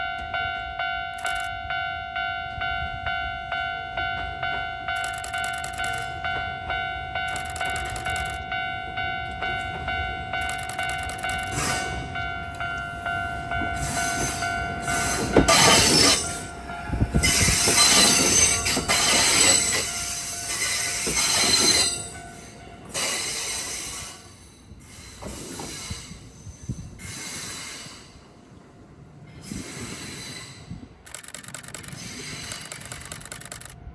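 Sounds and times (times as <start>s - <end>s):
level crossing warning bell ringing: 0.0s - 27.2s
electric train passing: 0.0s - 33.9s
train wheels squealing: 10.5s - 12.2s, 13.7s - 28.2s, 29.3s - 31.0s, 31.6s - 33.2s.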